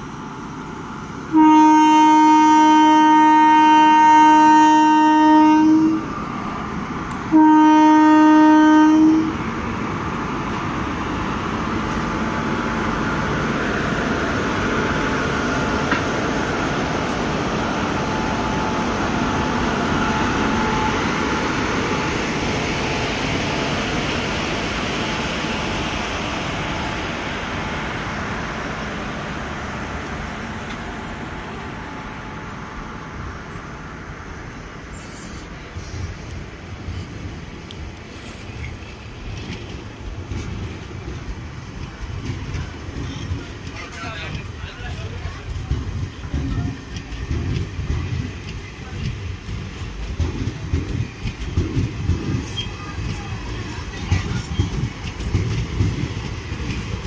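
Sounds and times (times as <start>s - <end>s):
train coaches rumbling past: 0.0s - 57.0s
train horn blasts: 1.3s - 6.1s, 7.3s - 9.4s.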